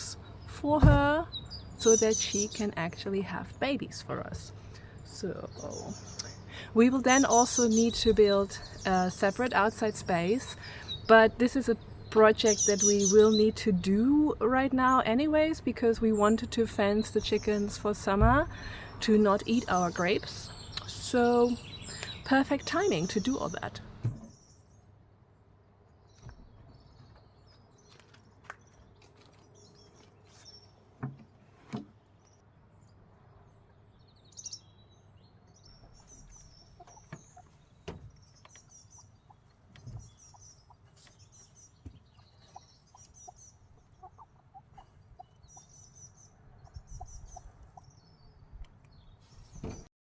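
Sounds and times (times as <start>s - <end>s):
small birds chirping: 0.0s - 49.9s
hens clucking: 36.6s - 37.6s, 39.0s - 45.7s.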